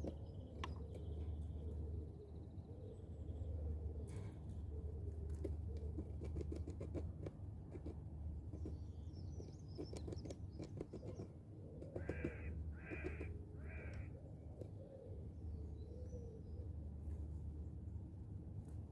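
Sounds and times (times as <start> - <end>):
small taps and scratches: 5.2 - 14.0
bird cawing harshly: 12.0 - 14.1.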